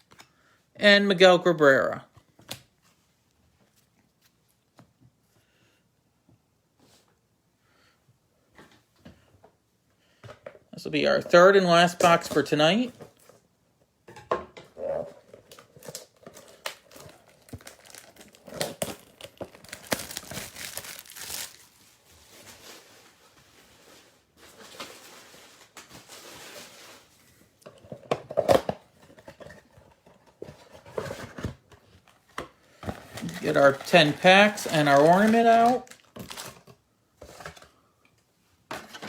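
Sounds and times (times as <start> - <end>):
plastic wrapping tearing and crinkling: 15.3 - 27.2, 32.9 - 36.8.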